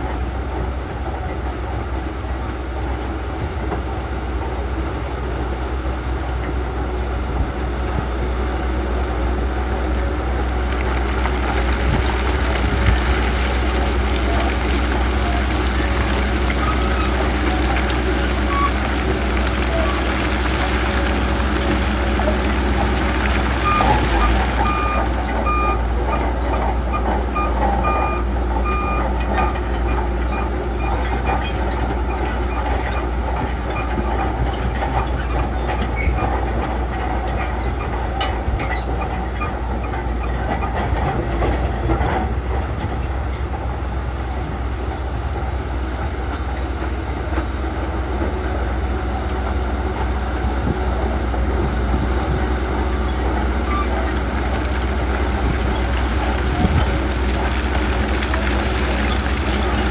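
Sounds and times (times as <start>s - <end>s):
bulldozer diesel engine: 0.0s - 59.9s
steel tracks clanking: 0.0s - 59.9s
reversing alarm beeping: 23.6s - 25.9s, 26.8s - 29.6s.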